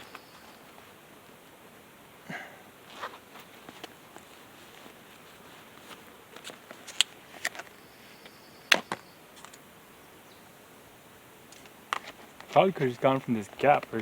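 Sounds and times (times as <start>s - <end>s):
creek water running: 10.8s - 14.0s.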